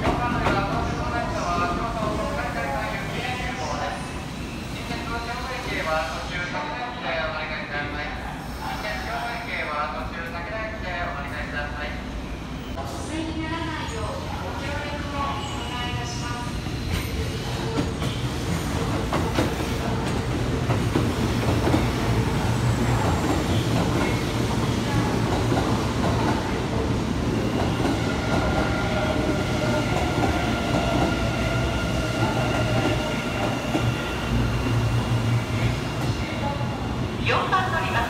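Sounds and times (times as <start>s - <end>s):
train wheels rumbling on rails: 15.4s - 38.0s.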